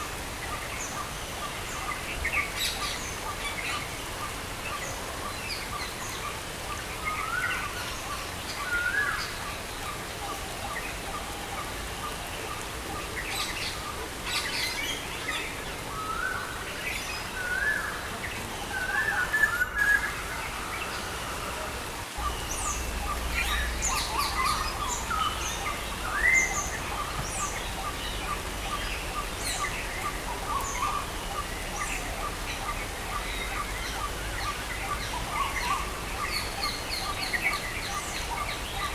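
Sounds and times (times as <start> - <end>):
songbirds chirping: 8.4 - 38.9
rain hissing: 18.1 - 38.9.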